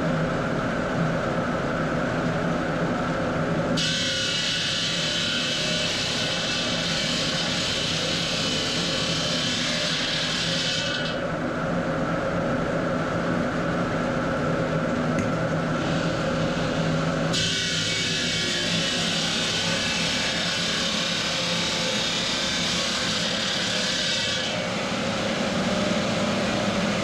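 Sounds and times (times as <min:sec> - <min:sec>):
cutting machinery high hiss: 0:03.8 - 0:11.1, 0:15.8 - 0:26.9.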